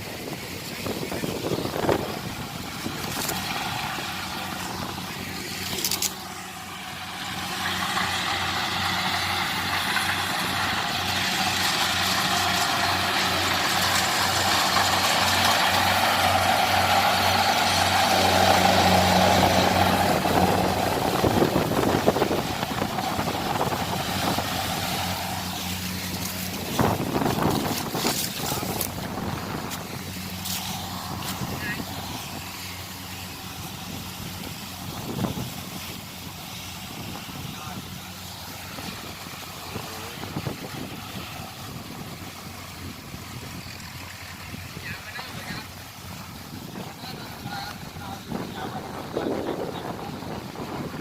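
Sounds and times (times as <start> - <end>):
diesel engine humming: 0.0 - 51.0.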